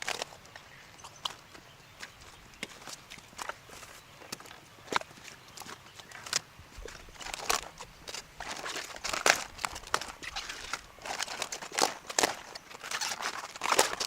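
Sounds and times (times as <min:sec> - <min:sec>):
rustling and crinkling: 0:00.0 - 0:14.0
sharp clicks and crackles: 0:04.3 - 0:14.0.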